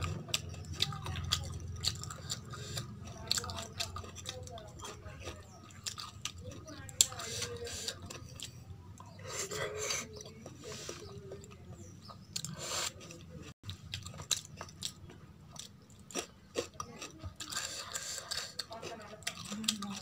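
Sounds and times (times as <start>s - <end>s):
person chewing close up: 0.0s - 20.0s.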